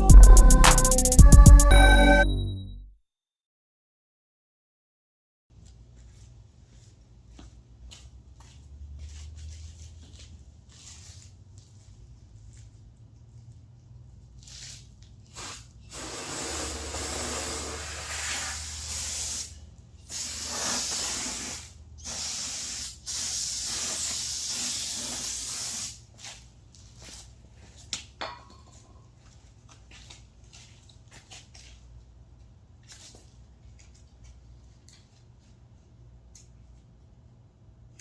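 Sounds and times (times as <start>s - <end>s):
aerosol can spraying: 15.4s - 26.0s.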